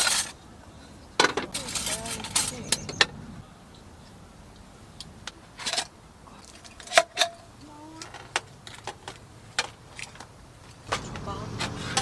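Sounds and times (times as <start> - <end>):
small hard objects clinking: 1.2 - 3.0.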